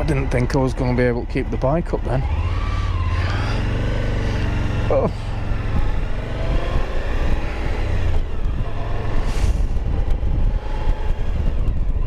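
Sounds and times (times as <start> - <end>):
motorcycle engine running: 0.0 - 12.0
wind rumble on microphone: 3.1 - 12.0.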